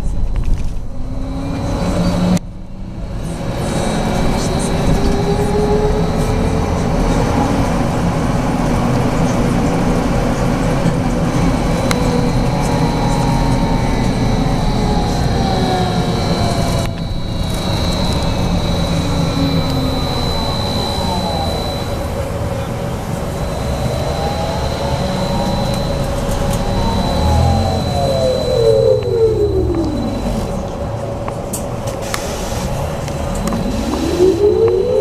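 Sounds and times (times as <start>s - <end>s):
running gear low rumble: 0.0s - 32.0s
electric drive whine: 9.5s - 31.4s
thin high whine: 10.7s - 31.1s, 32.3s - 35.0s.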